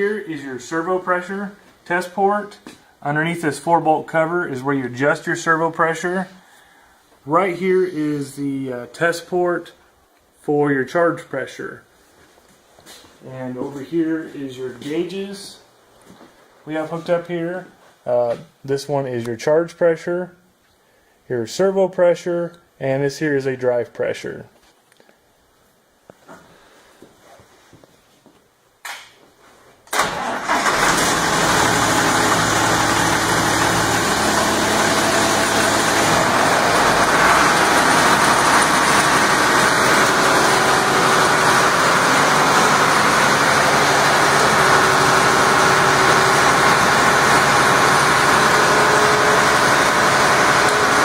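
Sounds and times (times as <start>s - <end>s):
dyno test stand running: 30.0s - 51.0s.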